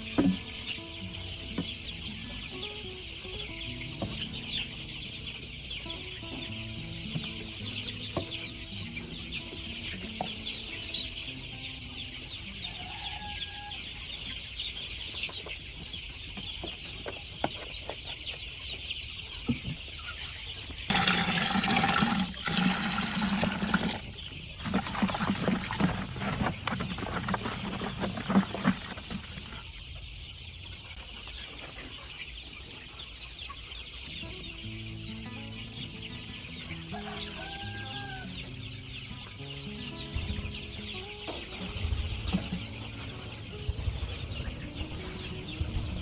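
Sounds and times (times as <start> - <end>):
chickens clucking: 0.0 - 46.0
clattering and knocks: 24.6 - 29.7.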